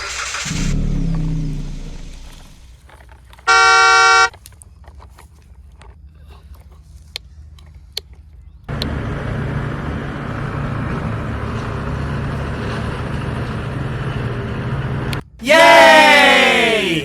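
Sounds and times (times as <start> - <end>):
vehicle motor running: 0.0 - 2.8, 8.7 - 15.3.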